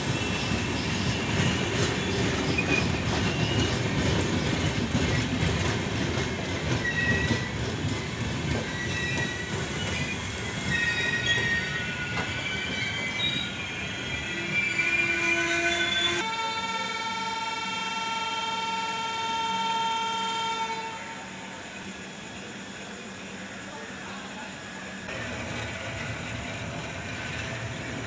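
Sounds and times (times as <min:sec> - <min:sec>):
wheel squeals: 0:00.0 - 0:05.4, 0:06.6 - 0:16.2
train wheels rumbling on rails: 0:00.0 - 0:16.3, 0:21.4 - 0:28.0
train horn: 0:14.3 - 0:21.4.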